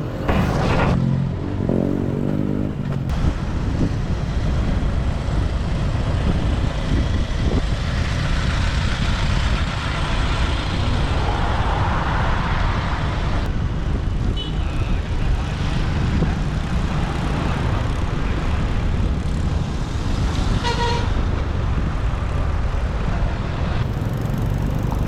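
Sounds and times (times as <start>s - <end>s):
wind on microphone: 2.8s - 25.0s
motorbike engine rumble: 23.1s - 25.0s.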